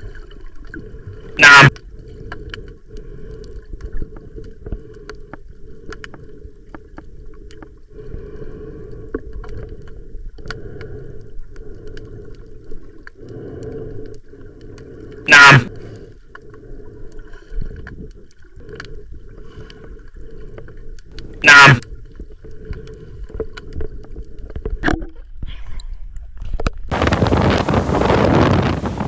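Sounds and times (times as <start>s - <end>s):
muffled underwater water noise: 0.0s - 29.0s
small clicks and crackles: 1.8s - 7.8s
loud rush of noise: 26.9s - 29.0s.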